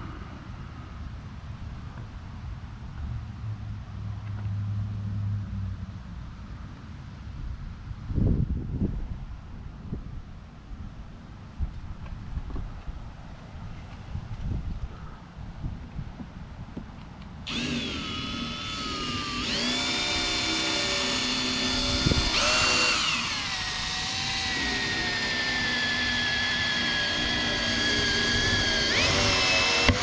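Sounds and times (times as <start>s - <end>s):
power drill boring through plastic: 17.5s - 30.0s.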